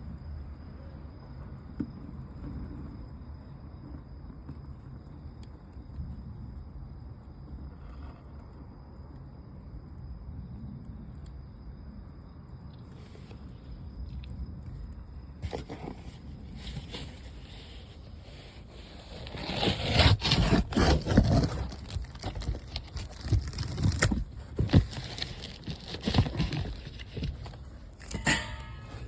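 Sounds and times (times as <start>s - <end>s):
paper fire crackling: 18.3s - 28.2s.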